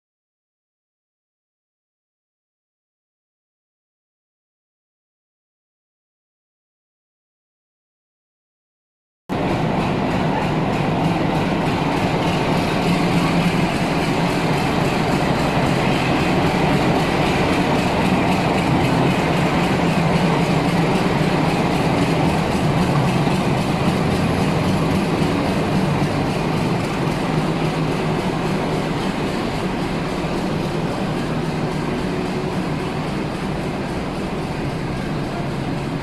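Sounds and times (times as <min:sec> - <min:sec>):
train rumbling on rails: 0:09.3 - 0:36.0.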